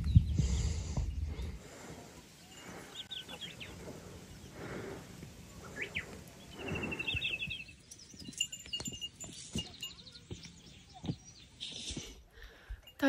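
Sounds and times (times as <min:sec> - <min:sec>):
small birds chirping: 0:00.0 - 0:13.0
bird trill: 0:05.6 - 0:12.0.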